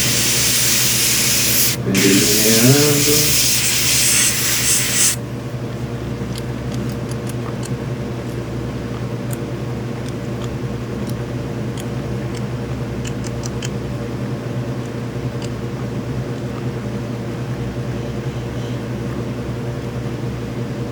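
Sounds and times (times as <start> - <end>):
airbrush spraying hiss: 0.0 - 5.2
air compressor hum: 0.0 - 5.8.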